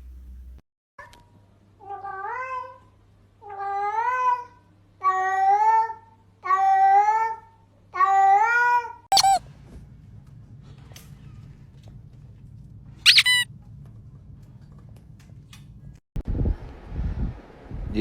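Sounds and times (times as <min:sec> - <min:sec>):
cat meowing: 0:09.1 - 0:09.4, 0:13.1 - 0:13.4.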